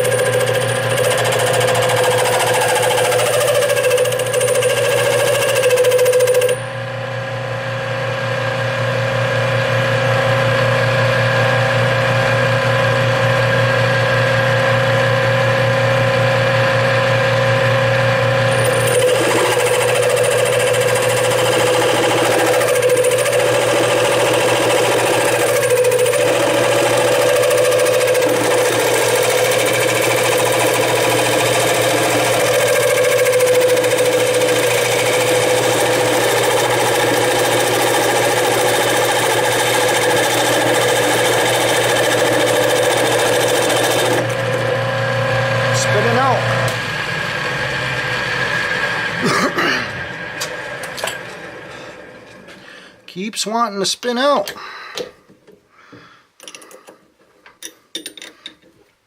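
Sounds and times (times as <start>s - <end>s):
rattling cutting noise: 0.0s - 6.6s, 18.4s - 44.8s
metal lathe running: 0.0s - 7.1s, 9.1s - 49.3s.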